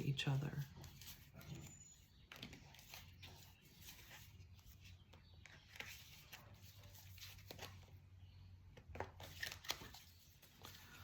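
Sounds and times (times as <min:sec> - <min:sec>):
cards being shuffled: 0:02.3 - 0:08.0, 0:08.8 - 0:11.0.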